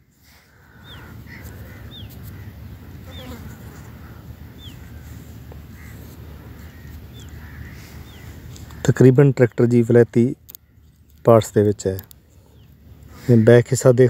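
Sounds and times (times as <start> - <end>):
birds chirping: 0.0 - 14.0
soft bird calls: 0.2 - 14.0
steady low rumble: 3.8 - 8.8.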